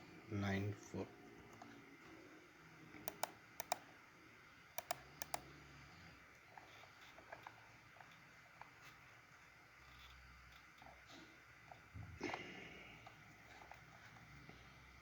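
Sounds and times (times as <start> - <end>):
keyboard and mouse clicks: 3.0 - 3.8, 4.8 - 5.5.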